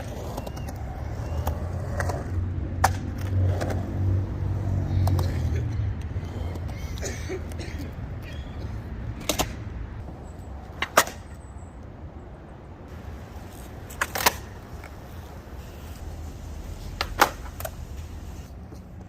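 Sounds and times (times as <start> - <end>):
skateboard clacks: 0.0 - 4.0, 4.9 - 5.4, 9.2 - 9.6, 13.0 - 15.2, 16.7 - 18.4
skateboard rolling on pavement: 0.0 - 8.2, 12.9 - 19.0.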